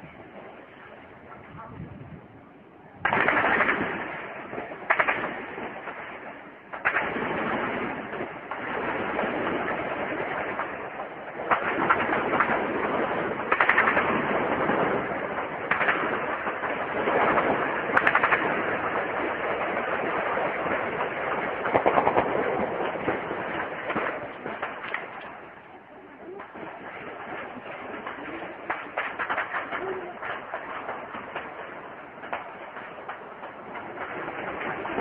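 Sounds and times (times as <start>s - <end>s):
automatic gunfire bursts: 3.0s - 4.3s, 11.5s - 25.2s.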